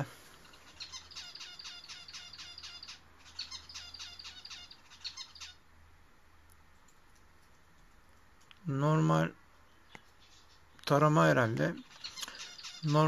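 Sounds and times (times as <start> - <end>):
small bird chirping: 0.0 - 5.7, 9.6 - 11.0, 11.6 - 13.0.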